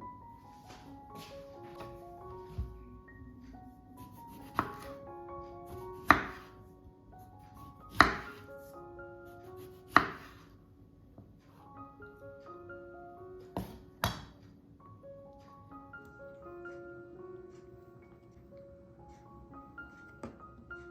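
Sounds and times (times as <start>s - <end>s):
soft background music: 0.0s - 20.9s
knife cutting on board: 4.1s - 4.9s, 7.9s - 8.4s, 9.6s - 10.4s.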